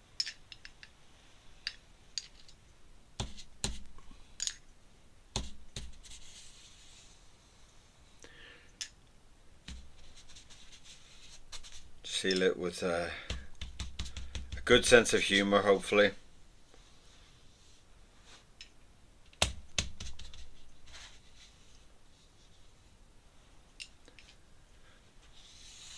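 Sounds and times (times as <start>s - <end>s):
dull knocks on desk: 13.3s - 14.9s
drawing tools clicking and tapping: 13.3s - 15.4s.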